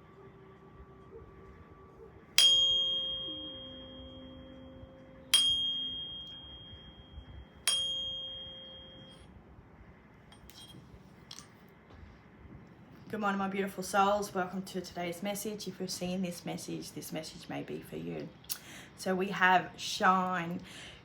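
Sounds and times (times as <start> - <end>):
ringing metal chime strikes: 2.4 - 9.2.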